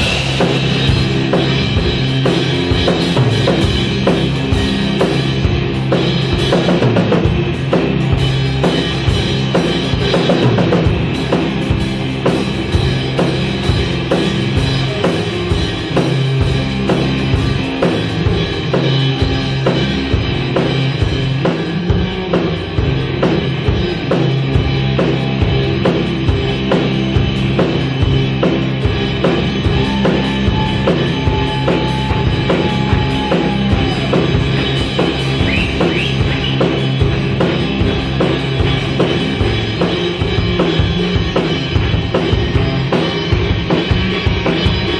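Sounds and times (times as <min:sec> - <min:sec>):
bass guitar: 0:00.0 - 0:44.9
drum kit beat: 0:00.0 - 0:44.9
sustained guitar: 0:00.0 - 0:44.9.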